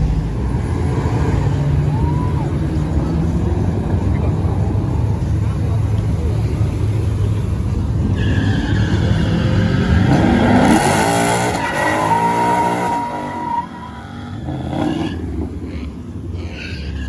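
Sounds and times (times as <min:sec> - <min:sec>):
car engine revving: 0:07.3 - 0:17.0
tyres squealing: 0:11.4 - 0:15.2.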